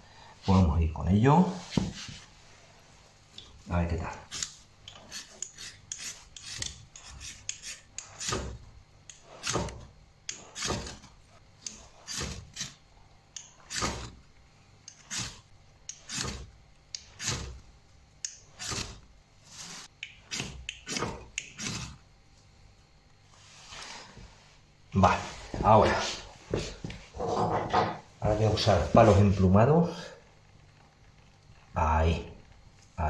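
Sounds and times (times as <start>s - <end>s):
ferrocerium rod scraped with striker: 4.3s - 12.8s, 13.4s - 14.2s, 14.9s - 17.6s, 18.2s - 22.0s.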